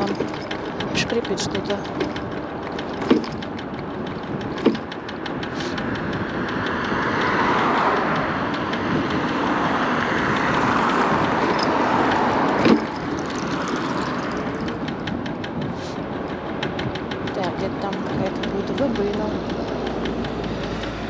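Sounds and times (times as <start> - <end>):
electric scooter rolling over pavement: 0.0 - 21.0
sharp knocks: 0.0 - 21.0
wind noise: 0.0 - 21.0.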